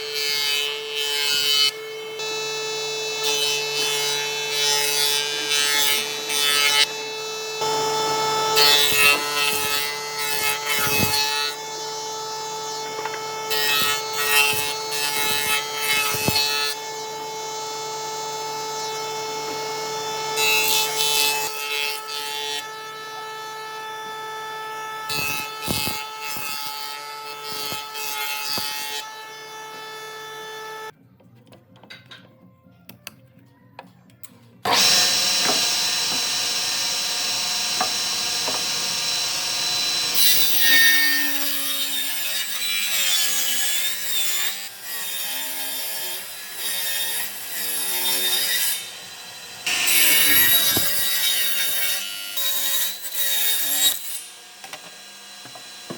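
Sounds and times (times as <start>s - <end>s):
power tool motor whining: 6.1s - 16.8s, 25.1s - 26.8s, 34.6s - 41.5s, 53.6s - 55.9s.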